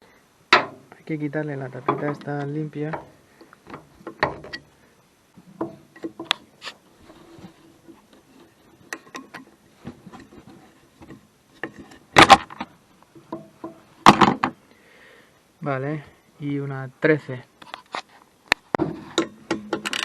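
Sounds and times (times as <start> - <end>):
light clicks and knocks of tools: 7.5 - 12.0.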